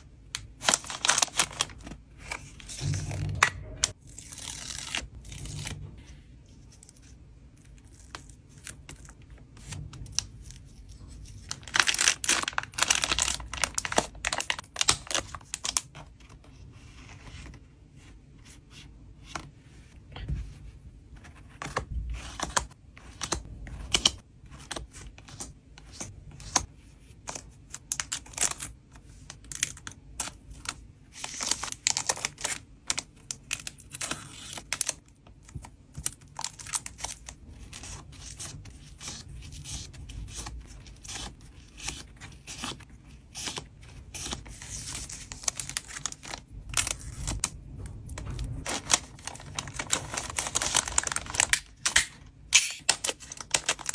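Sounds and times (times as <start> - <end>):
plastic packaging crinkling: 0.5 - 3.5, 11.1 - 16.0, 43.9 - 47.5, 48.5 - 53.9.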